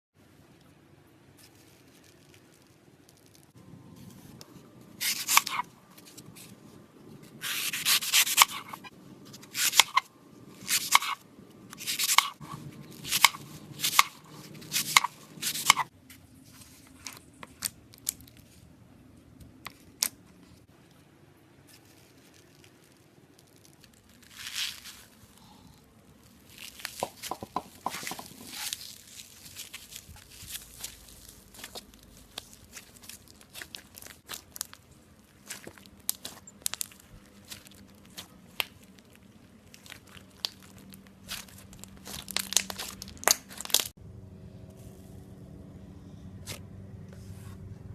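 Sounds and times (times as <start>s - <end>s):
slime crackling and crunching: 21.7s - 25.4s, 26.1s - 44.0s.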